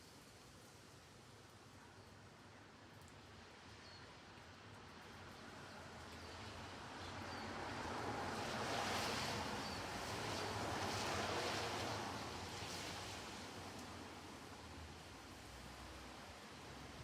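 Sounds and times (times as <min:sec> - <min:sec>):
soft rain falling: 0:00.0 - 0:17.0.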